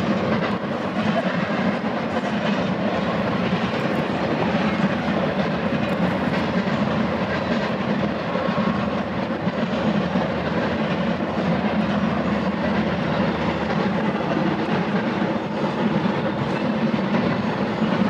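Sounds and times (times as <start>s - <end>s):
freight train rolling past: 0.0s - 18.0s.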